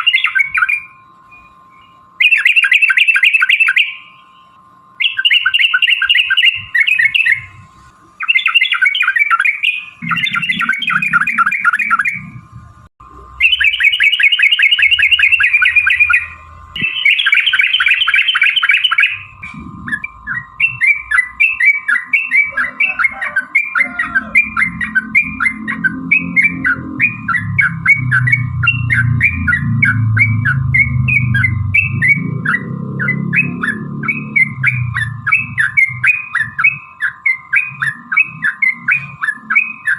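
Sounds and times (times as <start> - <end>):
bird song chattering: 0.0 - 12.6, 13.2 - 39.9
steady hum: 0.0 - 39.9
low rumble: 10.0 - 13.2, 19.2 - 21.2, 24.1 - 36.8.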